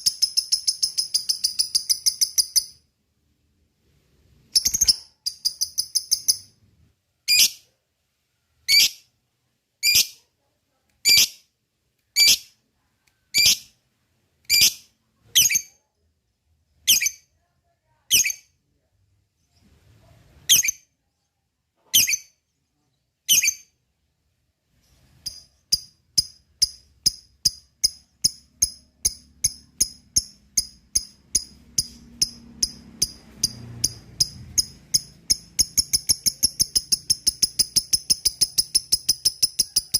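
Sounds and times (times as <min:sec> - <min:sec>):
lovebird chirping: 0:00.0 - 0:02.9, 0:04.4 - 0:06.6, 0:07.2 - 0:07.6, 0:08.6 - 0:09.1, 0:09.8 - 0:10.2, 0:13.3 - 0:13.8, 0:20.4 - 0:23.8, 0:24.8 - 0:39.9.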